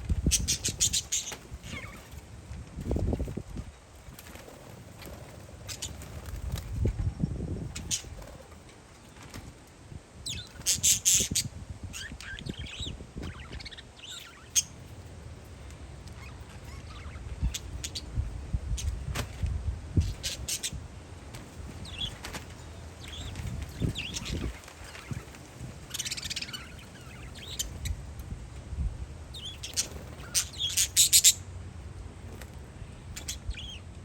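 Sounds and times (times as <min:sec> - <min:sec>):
wind on microphone: 0:00.0 - 0:08.6, 0:09.9 - 0:14.2, 0:16.6 - 0:22.3, 0:23.0 - 0:30.2
parakeets chirping and squawking: 0:00.1 - 0:02.3, 0:04.2 - 0:06.8, 0:07.7 - 0:08.6, 0:10.2 - 0:15.1, 0:16.0 - 0:18.2, 0:20.0 - 0:28.0, 0:29.3 - 0:31.4, 0:32.9 - 0:33.8.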